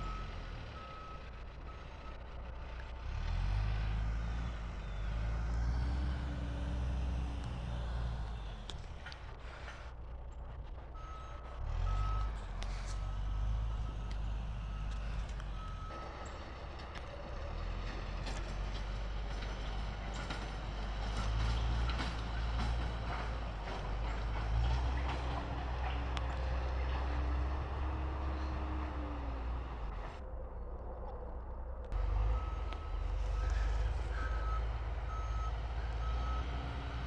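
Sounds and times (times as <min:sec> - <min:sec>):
diesel engine rumbling: 0:00.0 - 0:37.0
backup alarm beeping: 0:32.2 - 0:36.6.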